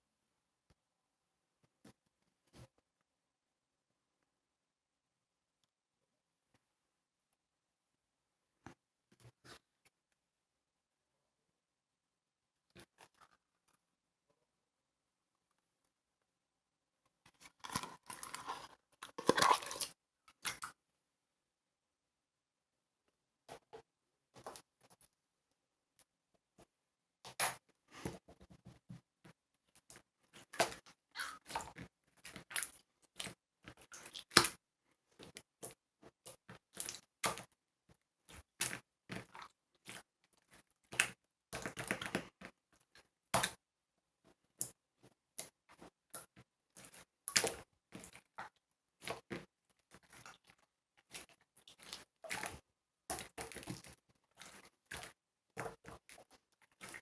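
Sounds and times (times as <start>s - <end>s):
slime squishing with wet pops: 27.3s - 43.6s, 44.3s - 57.0s.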